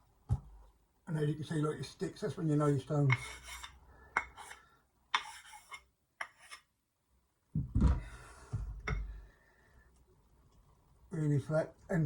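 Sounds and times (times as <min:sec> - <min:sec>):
sharpening stones scraping: 0:03.1 - 0:06.7
heavy thump: 0:07.6 - 0:08.7.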